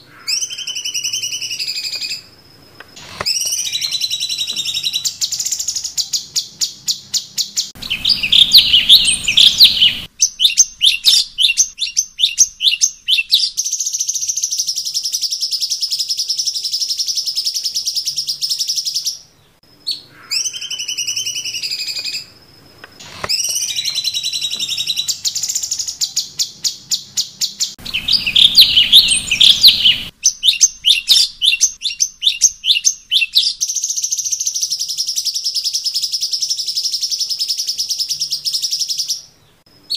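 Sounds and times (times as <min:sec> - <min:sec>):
recorded bird song: 0:00.0 - 0:39.9
fast clicking bird trills: 0:02.8 - 0:14.4, 0:22.9 - 0:38.6
high buzzy held bird notes: 0:27.8 - 0:30.1.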